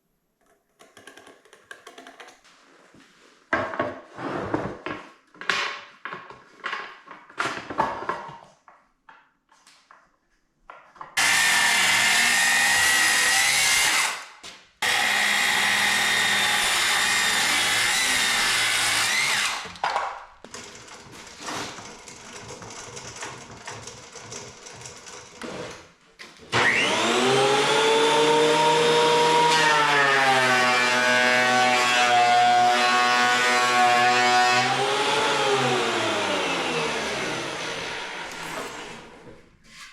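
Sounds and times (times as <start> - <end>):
clatter of wood and tools: 3.5 - 10.1, 19.2 - 26.6
woodworking power tools running: 11.2 - 19.9, 26.5 - 39.3.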